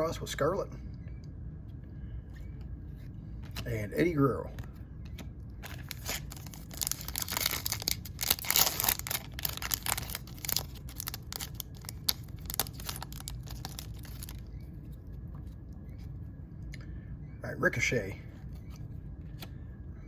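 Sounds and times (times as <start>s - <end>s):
cards rustling and clicking: 5.0s - 14.4s
wrapper tearing and crinkling: 5.6s - 14.4s.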